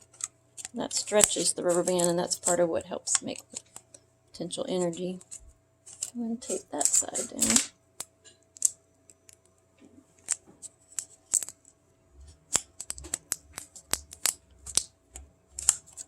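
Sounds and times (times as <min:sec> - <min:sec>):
tape and paper cups crackling: 0:00.0 - 0:04.0, 0:04.6 - 0:07.7, 0:12.2 - 0:16.0.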